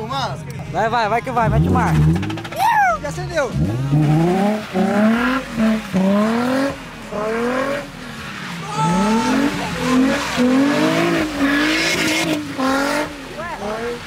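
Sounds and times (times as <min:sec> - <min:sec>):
car engine revving hard: 0:01.4 - 0:02.6, 0:03.2 - 0:14.0.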